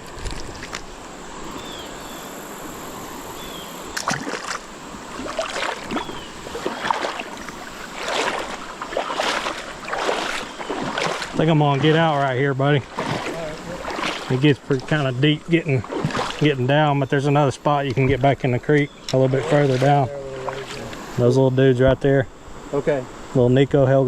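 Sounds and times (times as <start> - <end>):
stream rushing: 2.6 - 18.0, 19.0 - 21.3
feet splashing through water: 4.0 - 16.7, 19.1 - 21.1.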